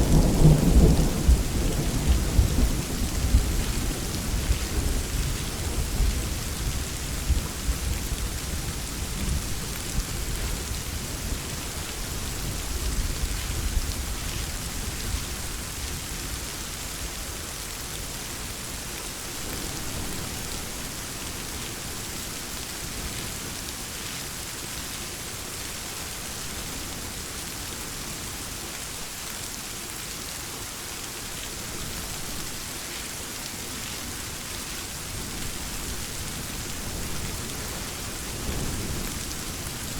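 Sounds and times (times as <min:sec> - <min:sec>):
thunder rumble: 0:00.0 - 0:06.3
steady rain falling: 0:00.0 - 0:39.9.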